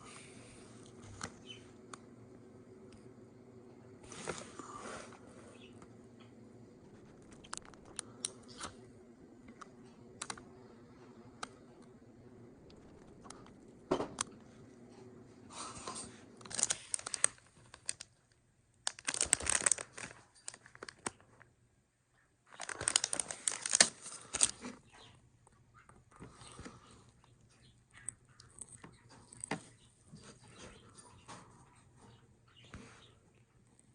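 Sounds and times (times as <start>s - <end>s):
plastic parts rattling and scraping: 15.7s - 18.1s, 18.9s - 21.3s, 22.5s - 24.8s.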